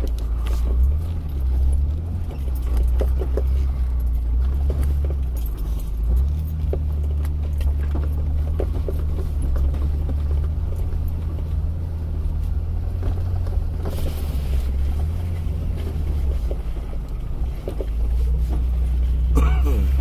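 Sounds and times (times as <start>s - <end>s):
vehicle body knocks and rattles: 0.0s - 11.4s
engine droning: 0.0s - 20.0s.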